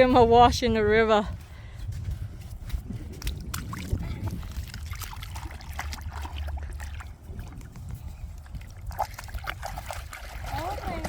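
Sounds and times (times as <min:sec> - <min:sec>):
small splashes: 0:03.3 - 0:07.7, 0:08.5 - 0:11.0
river water sloshing and trickling: 0:03.5 - 0:11.0.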